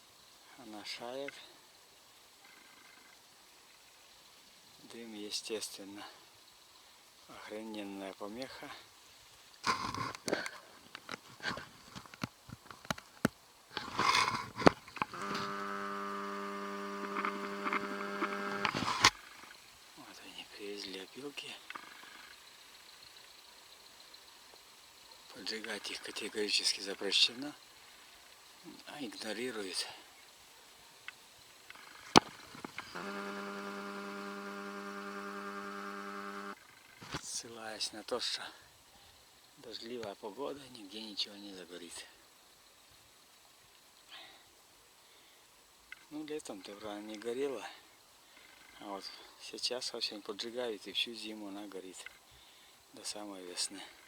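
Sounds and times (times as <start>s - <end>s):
insect buzzing steadily: 0.0s - 54.0s
clicks and crackles: 9.6s - 19.6s, 31.1s - 37.3s.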